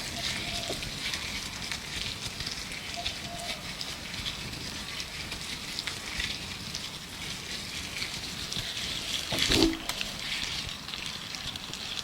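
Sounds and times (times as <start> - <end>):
faint bird call: 0.0 - 0.8, 2.9 - 3.7
gloves crinkling: 0.0 - 12.0.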